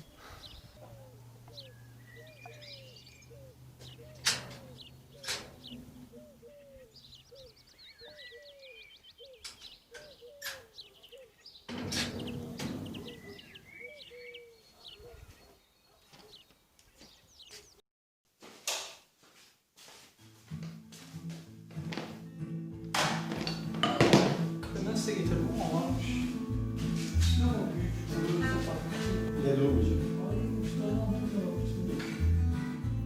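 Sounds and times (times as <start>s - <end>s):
birds calling and chirping: 0.0s - 17.8s
noisy clatter: 11.7s - 13.2s
sharp knocks: 22.9s - 24.6s.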